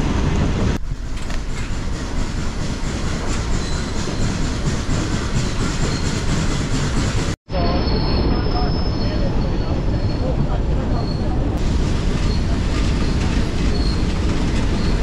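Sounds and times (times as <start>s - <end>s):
train rumbling on track: 0.0s - 15.0s
wheels clicking over rail joints: 0.8s - 7.3s.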